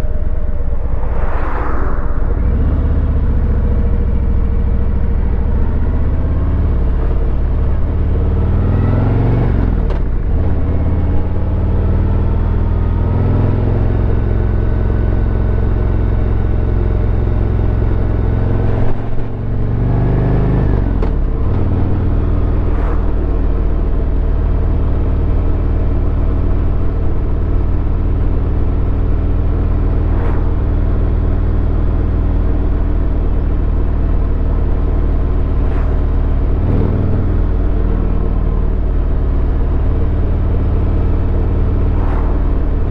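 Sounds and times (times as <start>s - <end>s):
motorcycle engine running: 2.7s - 42.9s.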